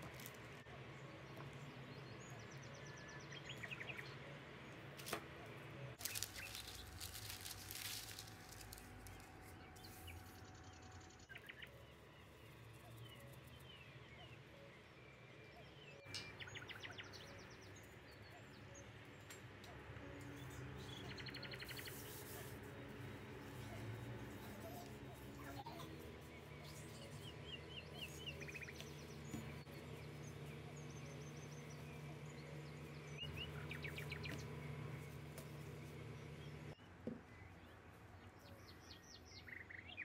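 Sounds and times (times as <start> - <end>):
low steady hum: 0.0 - 40.0
birds chirping and trilling: 9.0 - 40.0.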